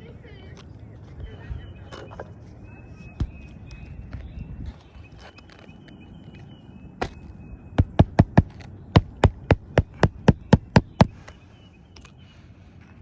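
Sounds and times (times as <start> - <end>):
hammer driving nails into shingle: 7.8 - 11.3.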